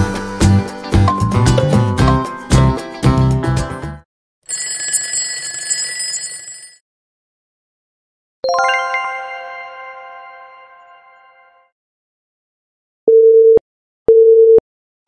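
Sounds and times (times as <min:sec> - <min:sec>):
bell ringing: 0:08.5 - 0:11.6
bright chime: 0:08.5 - 0:11.6.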